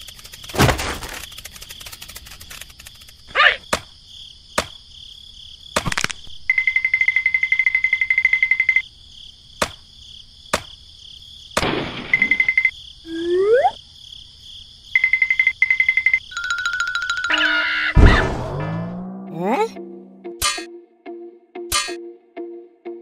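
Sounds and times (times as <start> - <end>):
high insect-like chirring: 0.0 - 17.9
loud hit: 18.0 - 19.0.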